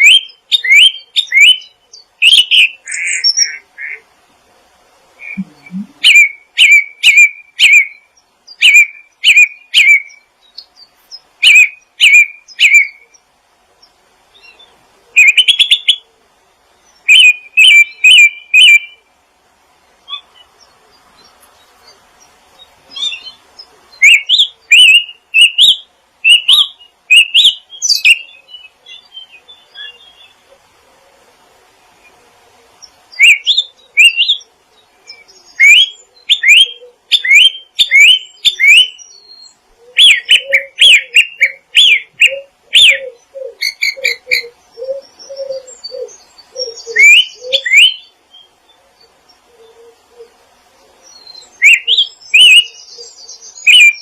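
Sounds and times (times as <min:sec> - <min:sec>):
songbirds chirping: 0:00.0 - 0:54.0
lower softer bird call: 0:05.1 - 0:13.2, 0:32.0 - 0:54.0.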